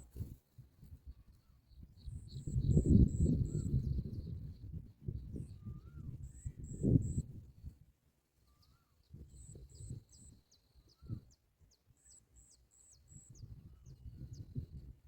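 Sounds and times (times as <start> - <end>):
small birds chirping: 1.0 - 7.2, 8.4 - 15.0.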